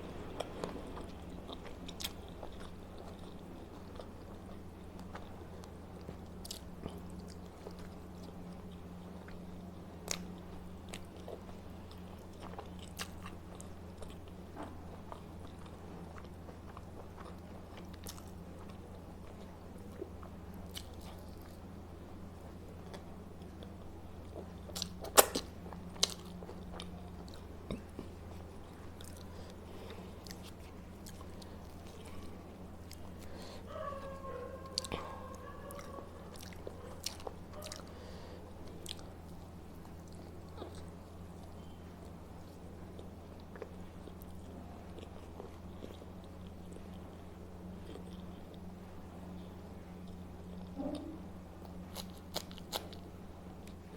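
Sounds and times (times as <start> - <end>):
steady low hum: 0.0 - 53.9
person chewing and biting: 0.2 - 21.7, 22.8 - 47.2, 51.6 - 53.9.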